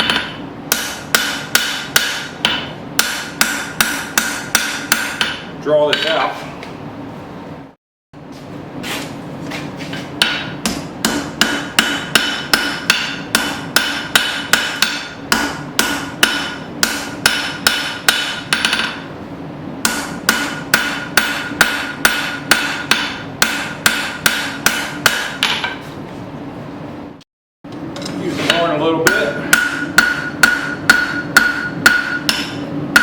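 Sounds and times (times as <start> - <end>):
steady hum: 0.0 - 33.0
hammer ringing on steel and anvil: 10.2 - 19.0, 19.8 - 25.6, 28.5 - 33.0.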